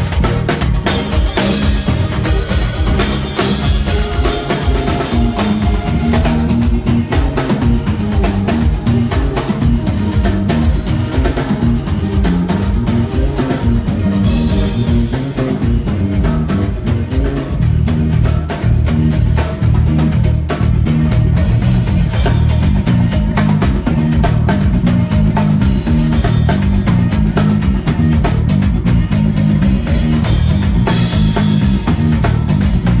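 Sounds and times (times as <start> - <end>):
bass line: 0.0 - 33.0
drum kit beat: 0.0 - 33.0
guitar: 0.0 - 33.0.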